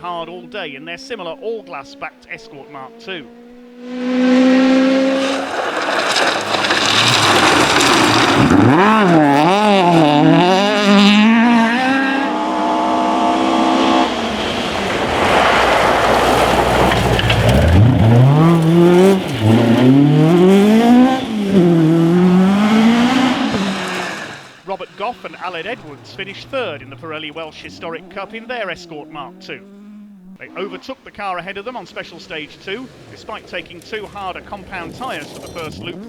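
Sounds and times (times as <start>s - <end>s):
rally car engine revving: 0.0s - 36.0s
tyres on gravel: 2.6s - 36.0s.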